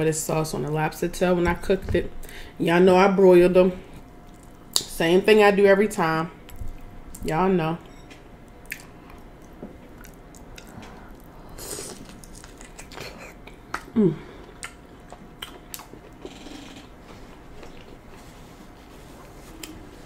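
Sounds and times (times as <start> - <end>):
chewing and mouth smacks: 4.2 - 4.9, 8.4 - 16.4
person humming: 13.9 - 14.4.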